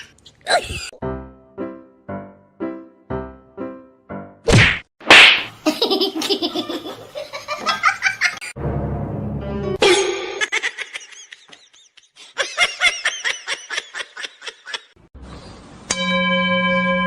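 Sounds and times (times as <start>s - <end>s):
person laughing: 5.6s - 8.5s, 9.8s - 15.0s
steady held tone: 15.9s - 17.0s.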